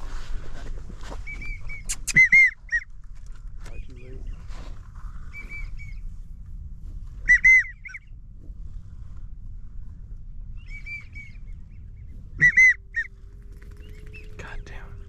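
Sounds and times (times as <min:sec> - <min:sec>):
duck whistled calls: 0:01.2 - 0:02.9, 0:05.3 - 0:06.0, 0:07.2 - 0:08.1, 0:10.6 - 0:11.4, 0:12.3 - 0:13.1.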